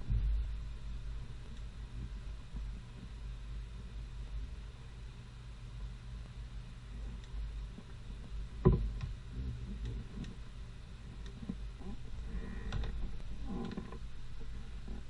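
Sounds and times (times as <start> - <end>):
low steady hum: 0.0 - 15.0
light clicks and taps: 7.0 - 10.4.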